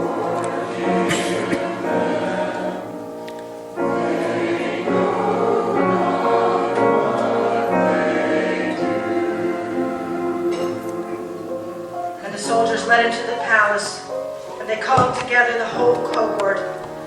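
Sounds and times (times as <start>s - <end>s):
choir singing: 0.0s - 14.8s
musical accompaniment: 0.0s - 17.0s.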